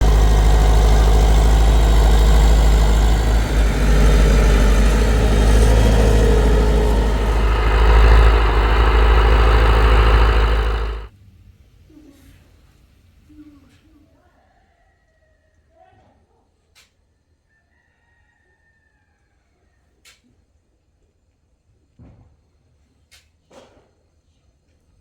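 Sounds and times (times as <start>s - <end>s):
tractor engine running: 0.0s - 11.1s.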